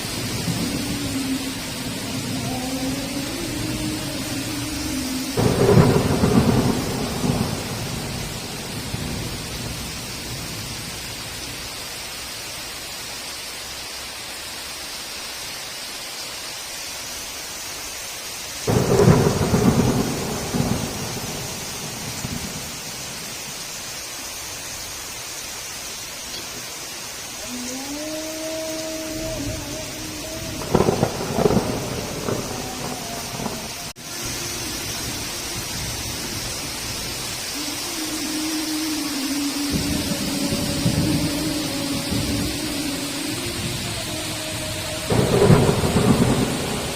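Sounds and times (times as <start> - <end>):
thunder claps rumbling: 0.0 - 11.0, 18.7 - 23.5, 28.7 - 46.9
heavy rain hissing: 0.0 - 46.9.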